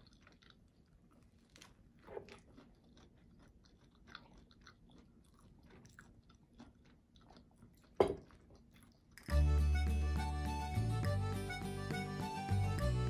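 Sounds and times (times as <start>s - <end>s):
faint chewing of crisp bun: 0.0s - 9.5s.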